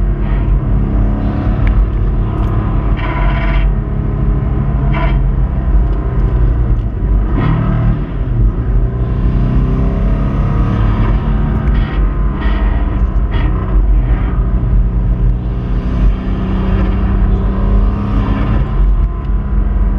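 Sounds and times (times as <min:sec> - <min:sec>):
car engine running: 0:00.0 - 0:19.9
road and wind noise: 0:00.0 - 0:19.9.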